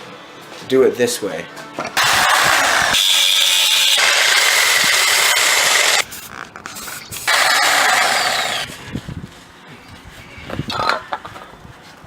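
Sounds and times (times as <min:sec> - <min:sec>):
power tool cutting steel pipe: 0:02.0 - 0:06.0, 0:07.2 - 0:08.7.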